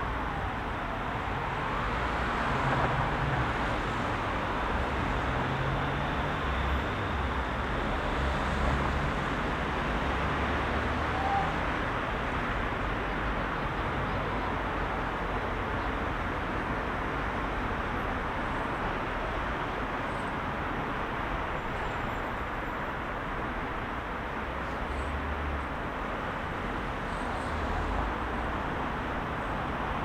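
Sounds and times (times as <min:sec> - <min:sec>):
emergency siren gliding down: 0:00.0 - 0:03.8
road traffic rumble: 0:00.0 - 0:30.0.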